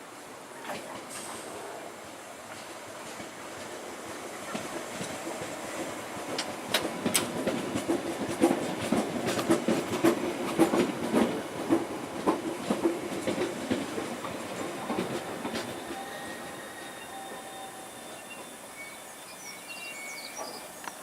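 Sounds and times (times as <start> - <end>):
train rumble: 0.1 - 21.0
train wheels clicking over rail joints: 2.5 - 16.1.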